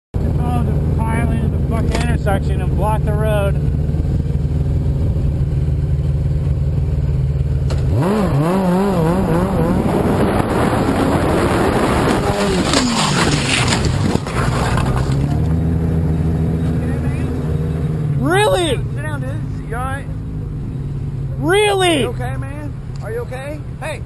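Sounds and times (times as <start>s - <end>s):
motorcycle engine revving: 0.2s - 22.9s
rushing wind: 8.0s - 15.2s.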